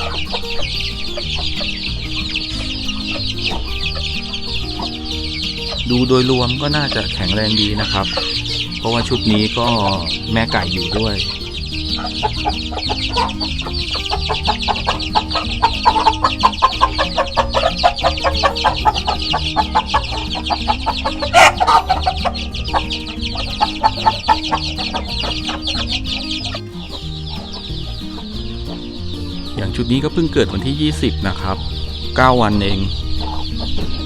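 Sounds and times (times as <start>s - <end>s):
chicks cheeping: 0.0s - 34.0s
hen clucking: 0.0s - 34.0s.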